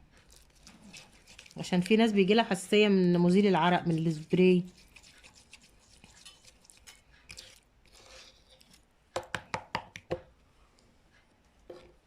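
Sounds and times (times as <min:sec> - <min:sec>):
utensil scraping container: 0:00.3 - 0:08.8.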